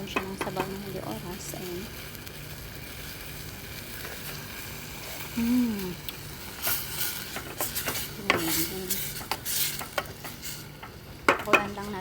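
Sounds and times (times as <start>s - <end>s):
liver sizzling in a pan: 0.0s - 12.0s
utensil scraping a pan: 6.4s - 11.7s.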